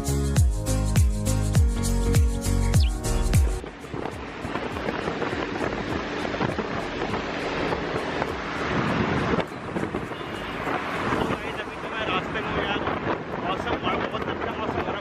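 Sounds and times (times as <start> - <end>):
wind buffeting microphone: 2.8 - 15.0.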